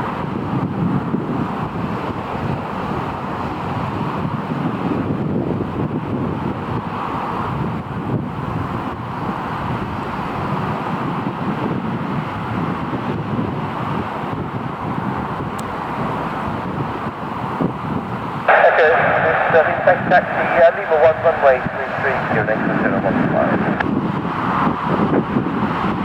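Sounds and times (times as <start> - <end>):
wind on microphone: 0.0 - 26.0
distant aircraft engine noise: 5.6 - 26.0.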